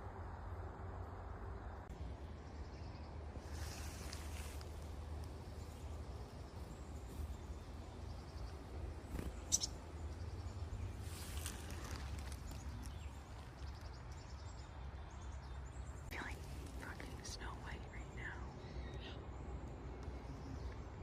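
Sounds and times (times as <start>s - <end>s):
faint bird chirps: 5.6s - 21.0s.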